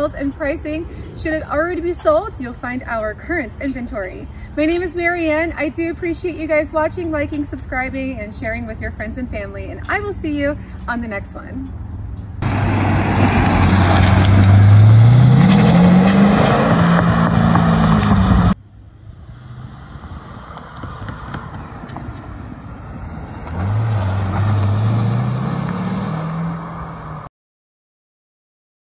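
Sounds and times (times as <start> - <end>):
car engine accelerating: 12.4 - 18.6, 19.2 - 27.3.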